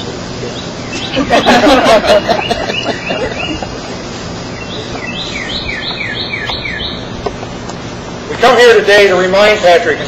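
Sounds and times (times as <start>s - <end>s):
outdoor background noise: 0.0s - 10.0s
songbird whistling notes: 0.5s - 1.7s, 2.3s - 3.6s, 4.5s - 7.2s.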